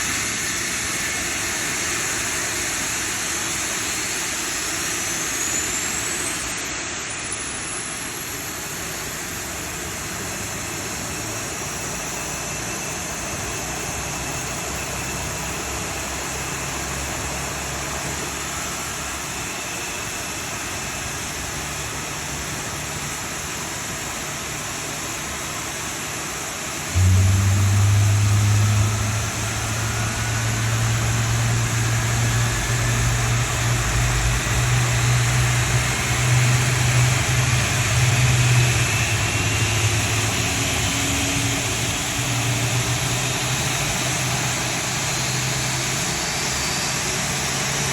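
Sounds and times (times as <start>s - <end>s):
jet engine whine: 0.0s - 47.9s
steady rushing noise: 26.7s - 46.6s.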